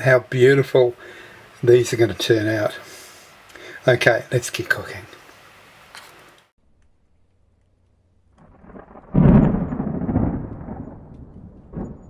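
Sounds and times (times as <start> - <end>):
deep rumble: 8.3 - 12.0.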